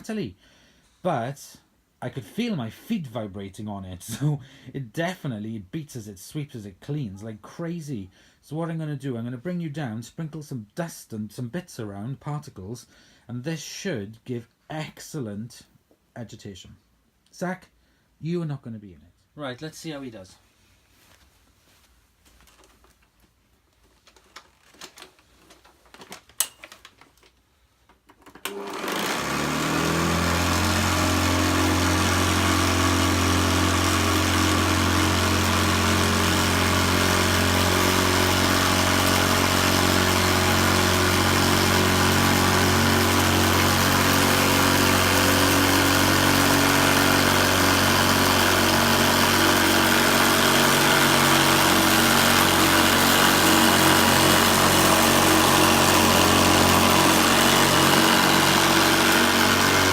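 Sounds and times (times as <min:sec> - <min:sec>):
upright vacuum cleaner running: 0:28.4 - 0:59.9
vacuum rattling: 0:28.4 - 0:59.9.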